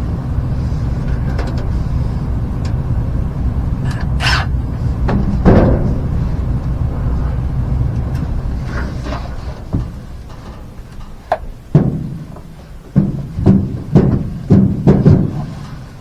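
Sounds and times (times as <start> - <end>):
sharp hollow knocks: 11.2 - 15.9.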